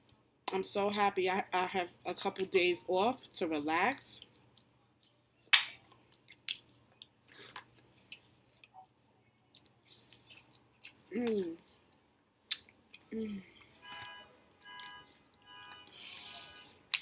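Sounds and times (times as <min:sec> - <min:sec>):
person chewing food: 0:04.2 - 0:13.8.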